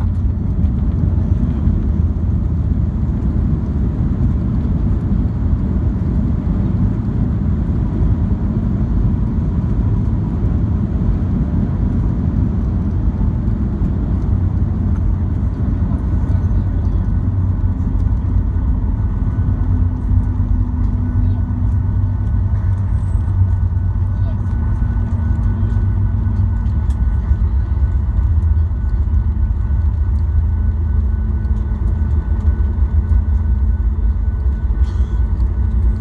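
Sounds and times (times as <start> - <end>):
airplane cabin engine rumble: 0.0 - 36.0
faint steady whine: 11.4 - 36.0.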